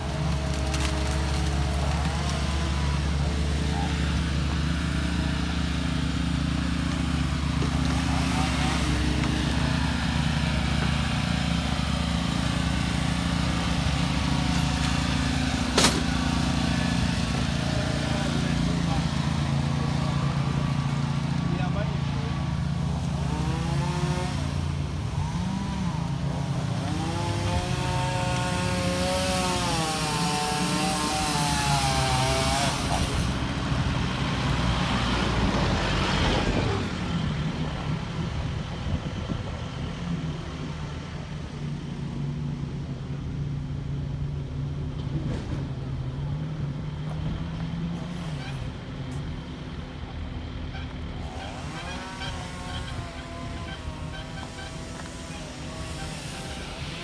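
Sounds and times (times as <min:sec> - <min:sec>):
vehicle engine running: 0:00.0 - 0:29.6, 0:30.8 - 0:57.0
road noise: 0:00.0 - 0:57.0.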